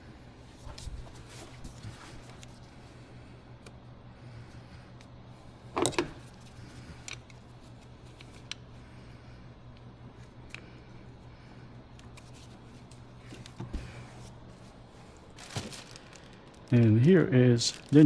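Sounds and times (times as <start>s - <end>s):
steady low hum: 0.0s - 18.0s
plastic and metal clatter: 15.4s - 16.7s.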